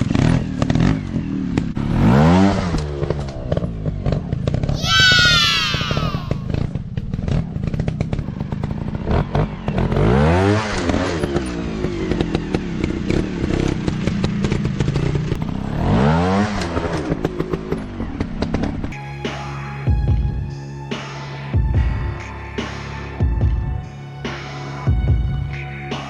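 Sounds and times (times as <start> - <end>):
dirt bike engine revving: 0.0 - 17.5.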